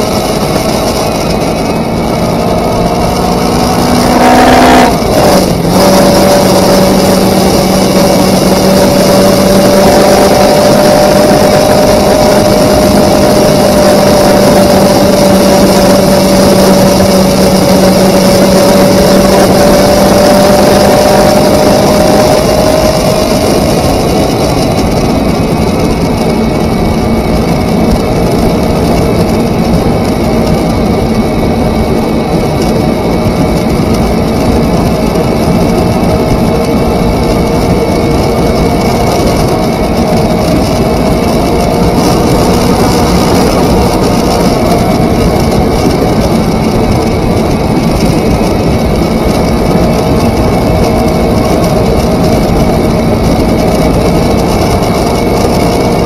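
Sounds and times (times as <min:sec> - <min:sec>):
motorcycle engine running: 0:00.0 - 0:56.0
wind noise: 0:00.0 - 0:56.0.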